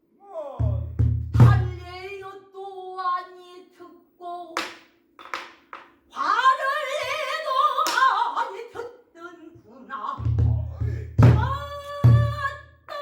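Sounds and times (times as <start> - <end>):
woman singing with vibrato: 0.3 - 4.6, 6.1 - 13.0
sharp knocks: 4.6 - 6.0.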